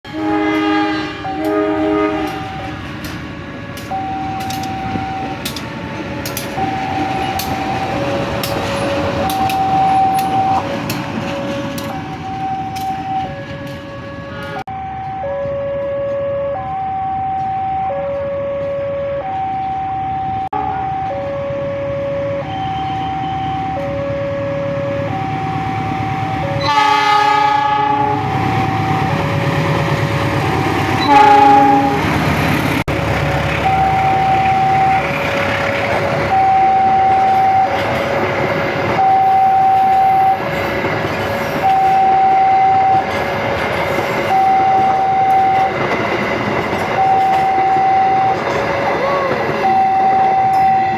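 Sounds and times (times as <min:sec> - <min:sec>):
train passing on rails: 0:00.0 - 0:50.9
train horn: 0:00.1 - 0:02.7, 0:13.6 - 0:14.7, 0:24.8 - 0:29.2, 0:31.0 - 0:32.3
two-tone warning alarm: 0:00.1 - 0:32.6, 0:33.6 - 0:50.9.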